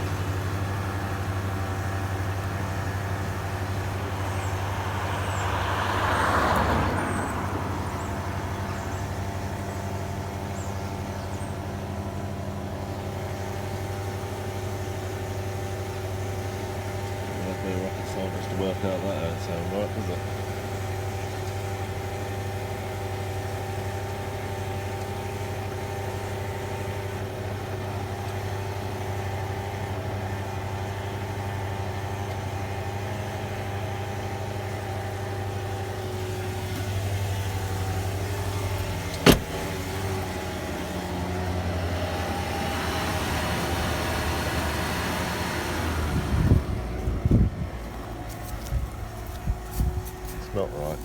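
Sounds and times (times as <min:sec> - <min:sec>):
car engine idling: 0:00.0 - 0:51.0
engine whine: 0:00.0 - 0:51.0.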